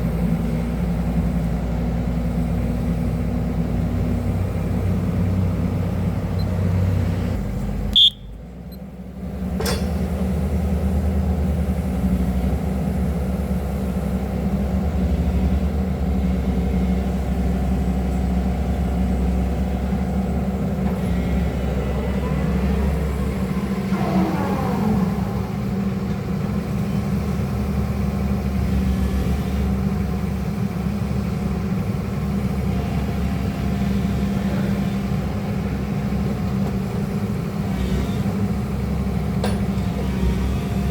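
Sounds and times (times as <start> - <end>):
diesel engine running: 0.0 - 40.9
faint rising and falling tones: 22.3 - 27.1.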